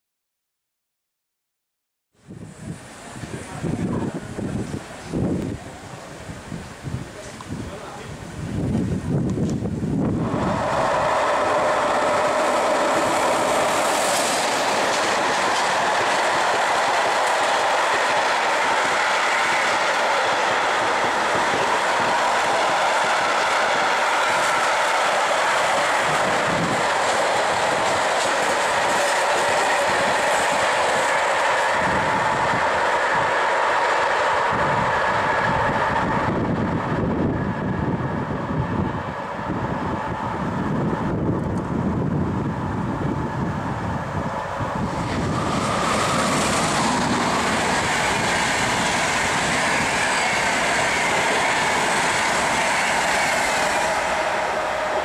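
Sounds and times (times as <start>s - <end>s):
train wheels rumbling on rails: 2.3s - 55.0s
clickety-clack over rail joints: 11.0s - 31.9s, 44.9s - 54.4s.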